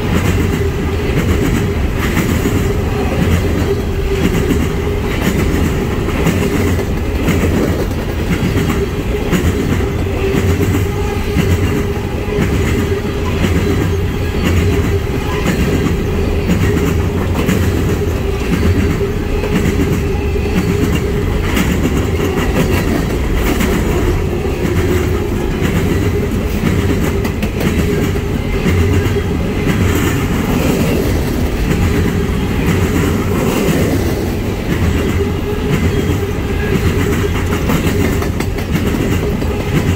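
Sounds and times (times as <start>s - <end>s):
clickety-clack over rail joints: 0.0s - 39.9s
steel wheels rumbling on rail: 0.0s - 39.9s.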